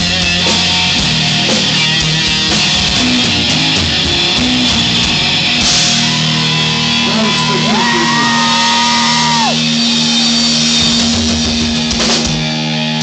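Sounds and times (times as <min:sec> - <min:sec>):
bass guitar: 0:00.0 - 0:13.0
drums: 0:00.0 - 0:13.0
electric guitar: 0:00.0 - 0:13.0.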